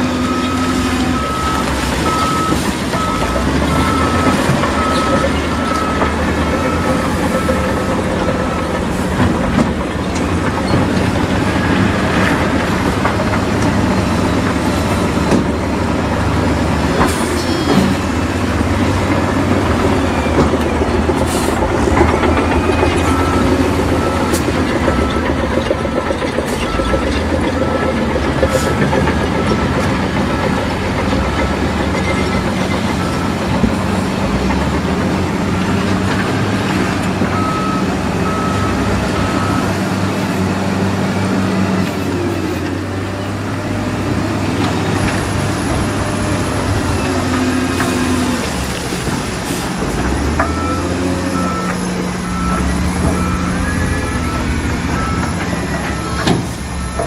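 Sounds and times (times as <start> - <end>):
reversing alarm beeping: 0.0 - 9.8, 19.8 - 34.8, 37.2 - 39.9, 50.2 - 57.0
bulldozer engine: 0.0 - 57.0
crawler tracks clattering: 1.5 - 39.2.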